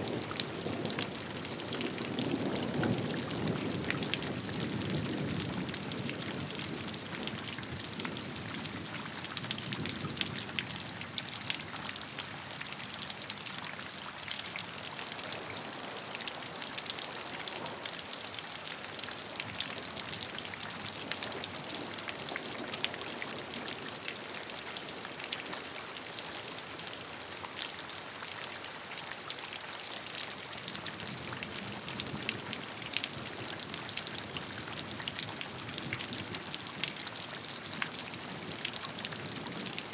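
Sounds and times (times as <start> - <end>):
steady rain hiss: 13.2 - 39.9.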